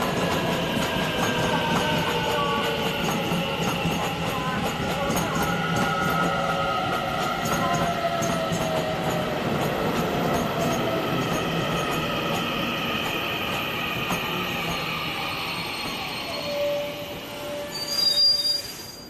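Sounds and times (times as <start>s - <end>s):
train wheels rumbling on rail: 0.0s - 18.0s
faint wheel squeal: 15.6s - 19.0s.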